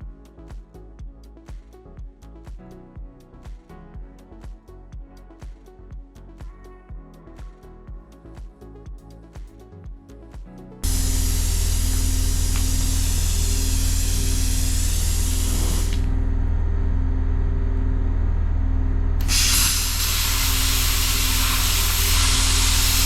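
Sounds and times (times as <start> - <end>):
tool hissing on metal: 10.8 - 16.1, 19.2 - 23.0
low electrical hum: 10.8 - 23.0.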